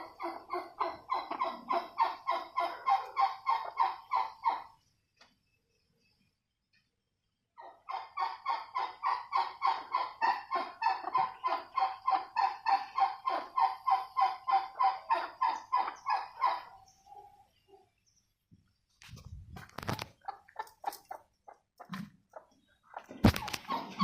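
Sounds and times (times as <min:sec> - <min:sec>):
turkey calling: 0:00.0 - 0:04.8, 0:07.6 - 0:17.8.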